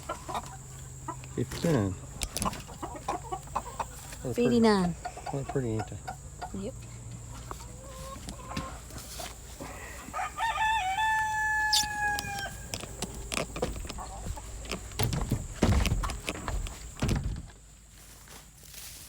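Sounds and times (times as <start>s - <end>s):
hens clucking: 0.0s - 17.3s
rooster crowing: 9.6s - 13.4s
knocks and thumps: 12.7s - 17.6s.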